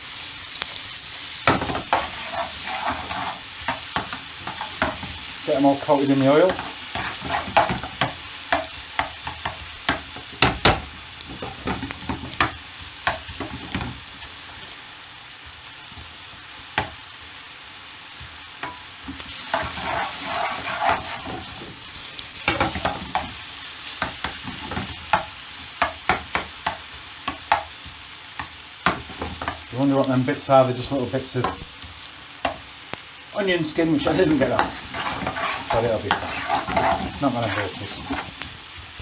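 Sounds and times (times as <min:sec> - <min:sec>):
onion sizzling in oil: 0:00.0 - 0:39.0
utensil scraping and knocking pan: 0:01.4 - 0:05.2, 0:06.4 - 0:14.0, 0:18.6 - 0:21.8, 0:22.4 - 0:23.4, 0:24.0 - 0:27.7, 0:34.0 - 0:38.4.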